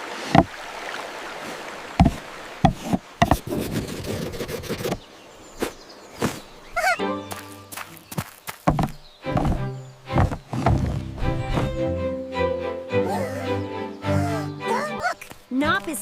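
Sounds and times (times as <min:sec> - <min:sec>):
wooden knocks and thuds: 0:00.3 - 0:00.6, 0:02.0 - 0:04.0, 0:08.6 - 0:11.8.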